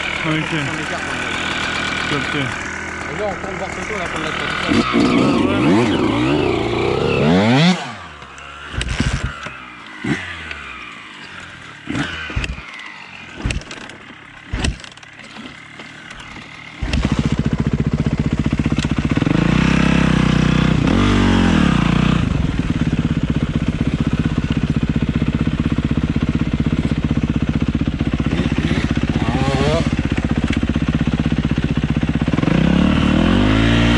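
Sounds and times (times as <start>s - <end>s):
dirt bike engine revving: 0.0s - 33.9s
knocks and clatters: 13.4s - 17.4s.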